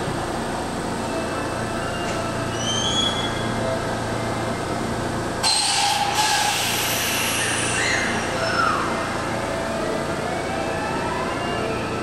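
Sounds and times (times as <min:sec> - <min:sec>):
electric train running noise: 0:00.1 - 0:12.0
loud hiss: 0:05.5 - 0:07.9.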